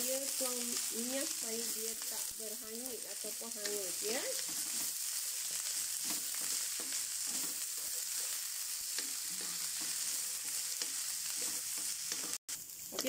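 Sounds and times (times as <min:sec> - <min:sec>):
beans sizzling in hot oil: 0:00.0 - 0:13.0
wooden spatula scraping a pan: 0:03.2 - 0:12.4.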